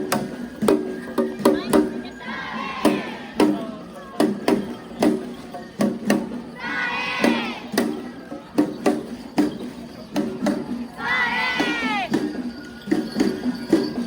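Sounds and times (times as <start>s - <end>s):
drum struck in steady beat: 0.0s - 2.1s, 2.7s - 14.0s
crowd shouting: 2.2s - 3.5s, 6.6s - 7.9s, 11.0s - 12.2s.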